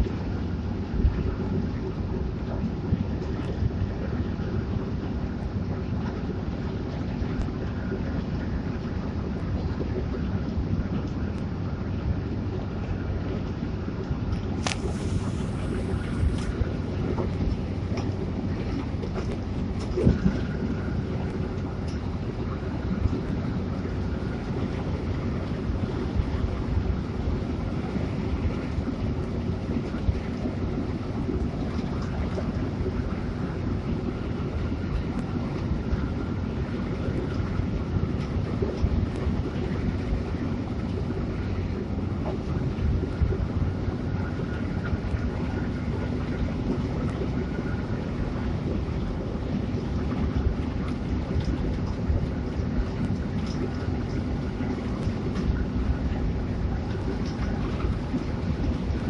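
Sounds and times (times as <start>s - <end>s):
faint steady hum: 0.0s - 59.0s
wind noise: 0.0s - 59.0s
bus engine rumble: 9.4s - 46.9s.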